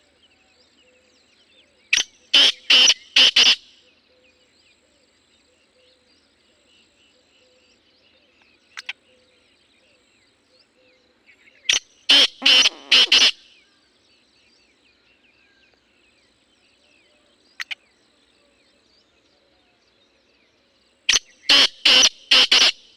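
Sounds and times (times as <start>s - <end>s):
birds chirping faintly: 0.0s - 22.9s
francolin harsh call: 2.3s - 3.7s, 12.1s - 13.6s, 21.1s - 22.9s
brief sharp bird notes: 12.1s - 13.4s.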